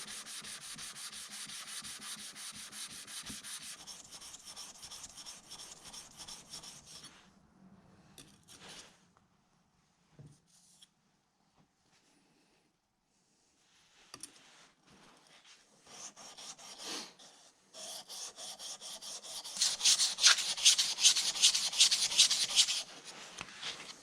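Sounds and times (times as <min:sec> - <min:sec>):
hand file strokes: 0:00.0 - 0:07.2, 0:15.8 - 0:23.8.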